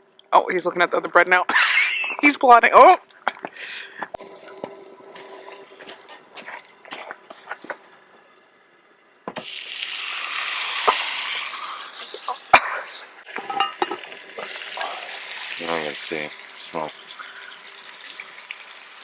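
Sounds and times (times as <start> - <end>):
loud sizzling hiss over campfire: 9.4 - 13.4, 14.3 - 17.9.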